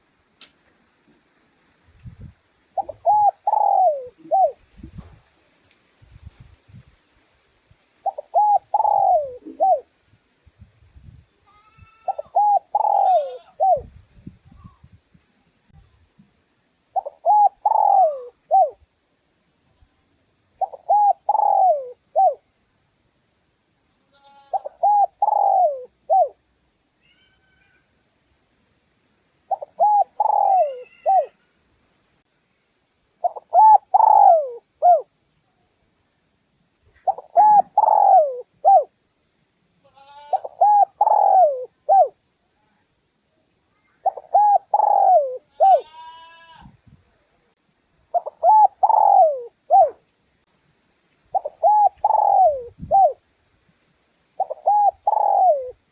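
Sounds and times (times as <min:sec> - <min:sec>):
dove cooing: 0:02.8 - 0:04.6, 0:08.0 - 0:09.9, 0:12.0 - 0:13.9, 0:16.9 - 0:18.8, 0:20.6 - 0:22.4, 0:24.5 - 0:26.4, 0:29.5 - 0:31.4, 0:33.2 - 0:35.1, 0:37.0 - 0:38.9, 0:40.3 - 0:42.2, 0:44.0 - 0:45.9, 0:48.1 - 0:50.0, 0:51.3 - 0:53.2, 0:54.4 - 0:55.8.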